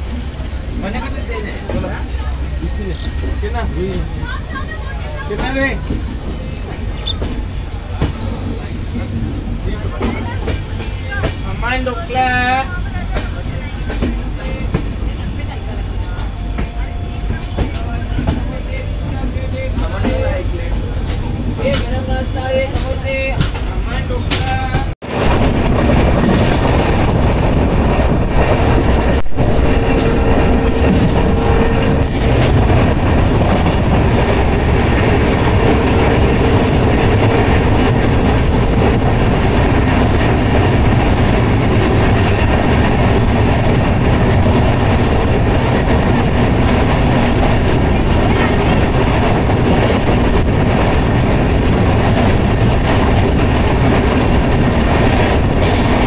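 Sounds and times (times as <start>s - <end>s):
faint train whine: 0.0s - 21.6s, 26.3s - 46.4s
train wheels rumbling on rails: 0.0s - 56.0s.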